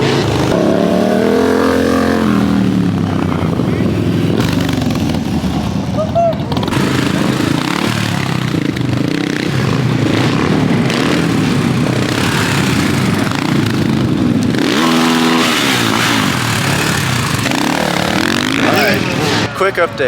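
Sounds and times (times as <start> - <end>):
engine exhaust revving: 0.0 - 20.0.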